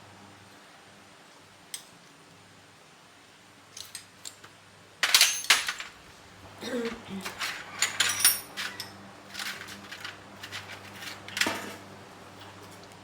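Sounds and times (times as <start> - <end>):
metal clattering: 5.0 - 6.0
small metal objects clinking: 5.0 - 6.0, 7.2 - 11.8.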